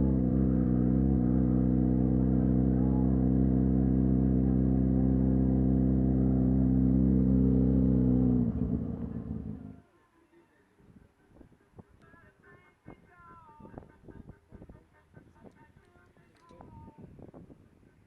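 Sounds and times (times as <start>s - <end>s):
vehicle engine idling: 0.0s - 9.8s.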